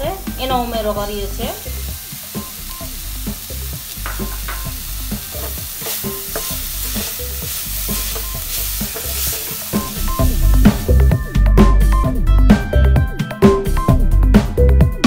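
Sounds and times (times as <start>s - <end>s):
vegetables sizzling in a pan: 0.0s - 11.5s
wooden spatula scraping a pan: 5.4s - 9.8s.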